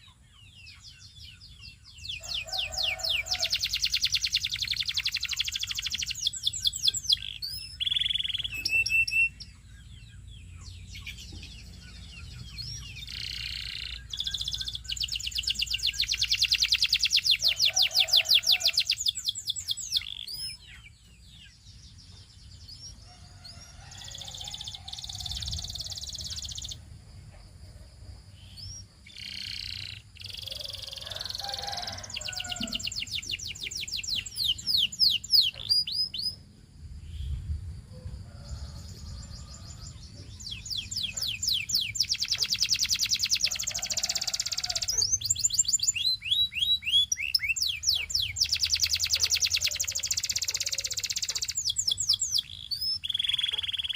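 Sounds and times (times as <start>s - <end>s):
canary singing fast trills: 0.0s - 37.4s, 38.3s - 53.9s
soft bird twittering: 0.7s - 9.9s, 10.5s - 22.0s, 38.3s - 53.9s.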